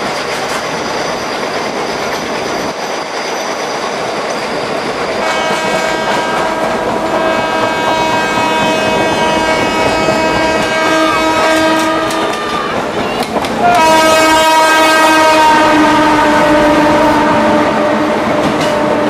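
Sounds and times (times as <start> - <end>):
train rumbling: 0.0 - 19.0
train horn long blast: 5.2 - 12.6, 13.6 - 19.0.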